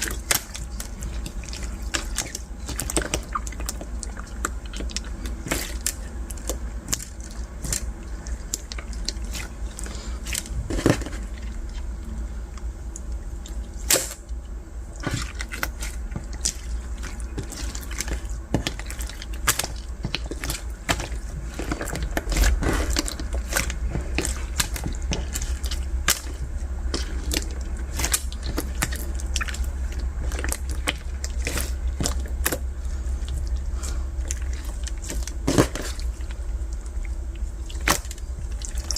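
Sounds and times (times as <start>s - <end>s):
slime squished by hand: 14.9s - 38.9s.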